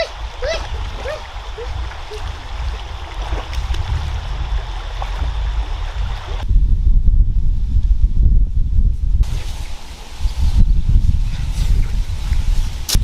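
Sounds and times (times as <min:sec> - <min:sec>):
water running and trickling: 0:00.0 - 0:06.4
steady low rumble: 0:00.0 - 0:13.0.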